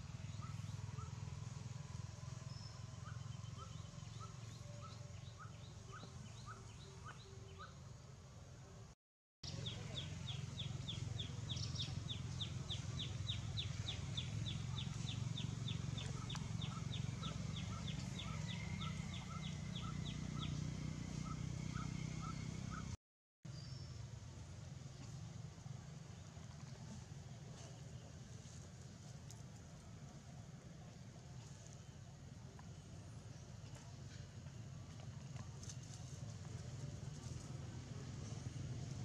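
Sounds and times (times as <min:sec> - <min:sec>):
low steady rumble: 0:09.5 - 0:39.0.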